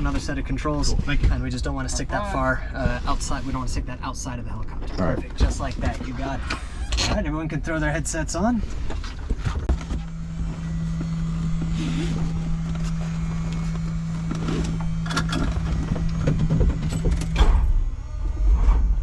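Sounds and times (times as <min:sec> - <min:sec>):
helicopter engine hum: 0:08.8 - 0:18.4
low drone: 0:09.6 - 0:19.0.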